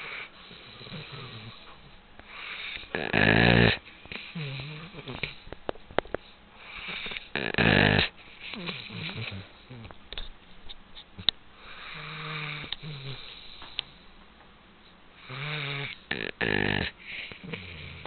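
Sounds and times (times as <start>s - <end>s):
dog snoring: 0.0s - 5.4s, 6.6s - 10.0s, 11.6s - 13.7s, 15.2s - 18.0s.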